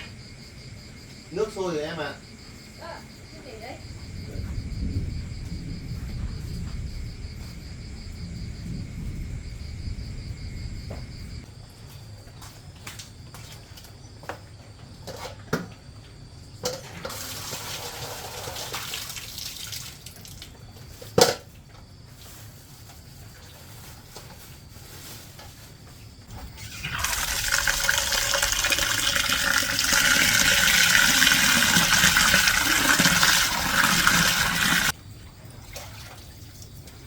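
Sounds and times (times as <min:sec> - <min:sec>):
water splashing and pouring: 0:17.0 - 0:20.6, 0:26.3 - 0:35.0.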